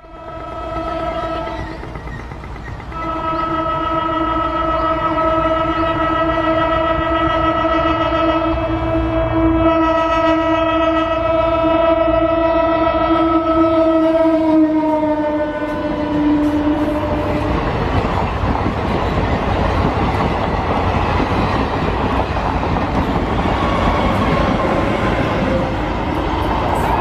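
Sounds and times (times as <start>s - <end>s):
train horn blast: 0.0s - 1.9s, 2.9s - 17.8s
train wheels rumbling and clattering: 0.0s - 9.2s, 13.7s - 27.0s.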